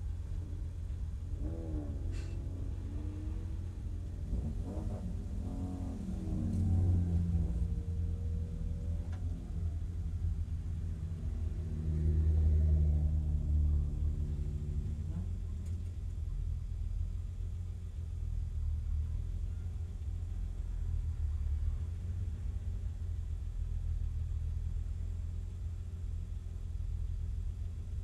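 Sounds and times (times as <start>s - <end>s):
race car engine idling: 0.0s - 11.7s, 13.2s - 28.0s
race cars passing: 0.5s - 15.3s.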